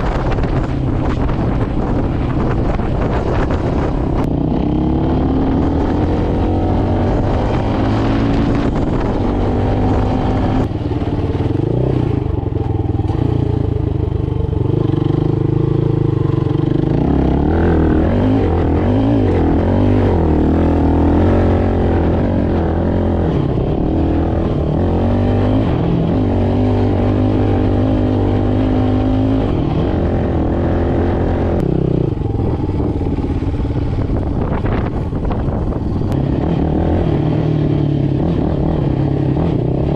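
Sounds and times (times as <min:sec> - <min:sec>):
motorcycle engine revving while riding: 0:00.0 - 0:39.9.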